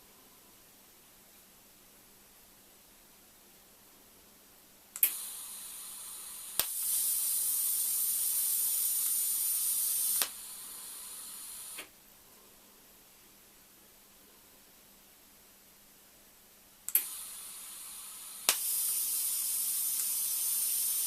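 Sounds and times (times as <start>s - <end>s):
torch click: 5.0s - 5.7s, 6.4s - 11.9s, 16.9s - 21.0s
welding arc high hiss: 5.0s - 11.9s, 16.9s - 21.0s
shielding gas hissing: 5.0s - 12.0s, 16.9s - 21.0s.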